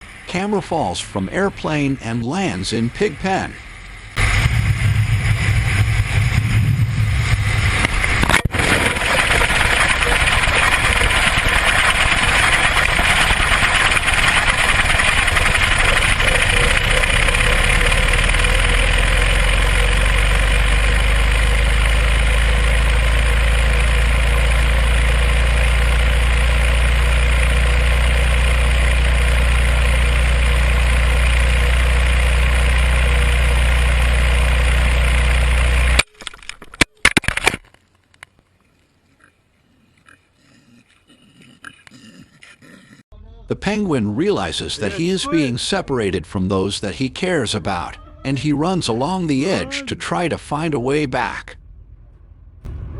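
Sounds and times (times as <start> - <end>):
deep rumble: 2.8 - 35.9, 47.1 - 52.9
wind rushing over microphone: 4.2 - 9.3.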